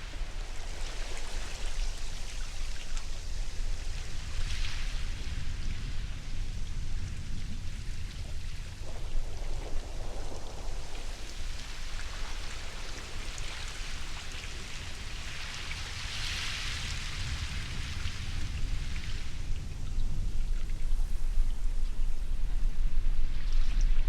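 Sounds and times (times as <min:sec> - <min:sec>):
waves washing ashore: 0:00.0 - 0:24.0.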